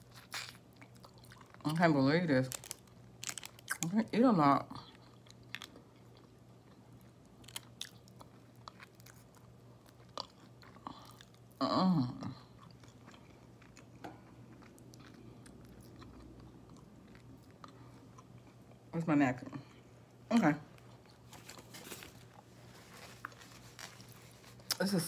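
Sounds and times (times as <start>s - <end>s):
person chewing chicken wings: 0.0s - 1.6s, 4.8s - 11.6s, 12.3s - 18.8s.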